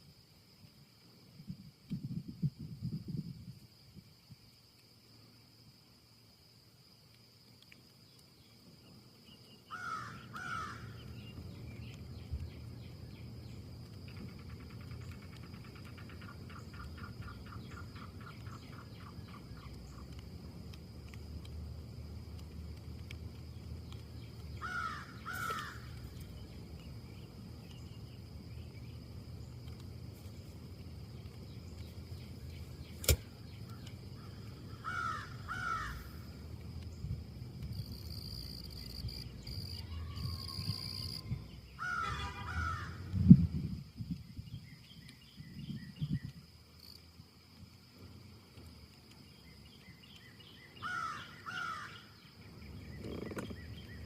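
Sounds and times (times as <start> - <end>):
low wind rumble: 1.2 - 4.5, 9.8 - 54.0
bird calling: 9.5 - 13.3, 14.1 - 20.2, 23.6 - 29.5, 31.5 - 36.4, 38.6 - 43.1, 49.3 - 54.0
sharp click: 33.0 - 34.0
bird calling in short calls: 41.8 - 43.0.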